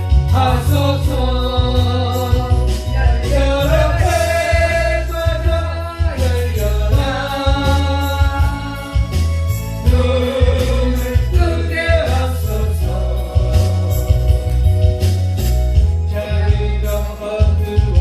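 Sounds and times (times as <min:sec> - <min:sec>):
accompaniment track with heavy bass: 0:00.0 - 0:18.0.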